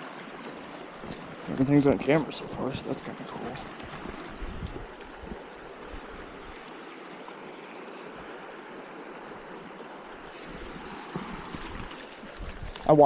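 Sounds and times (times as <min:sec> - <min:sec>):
brook flowing water: 0:00.0 - 0:13.0.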